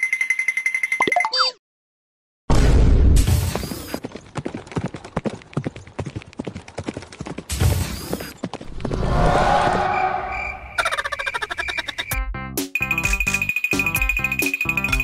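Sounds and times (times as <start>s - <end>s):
cartoon clopping footsteps: 3.5s - 9.0s.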